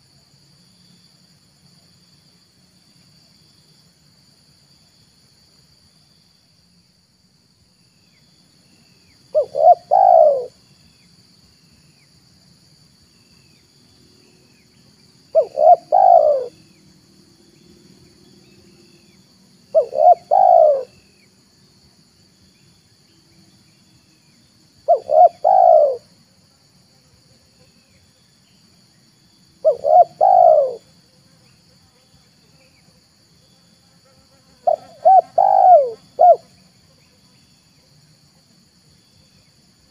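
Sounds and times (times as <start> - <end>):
high-pitched insect trill: 0.0 - 39.9
dove cooing: 9.3 - 10.6, 15.3 - 16.6, 19.7 - 21.0, 24.9 - 26.1, 29.6 - 30.9, 34.6 - 36.5.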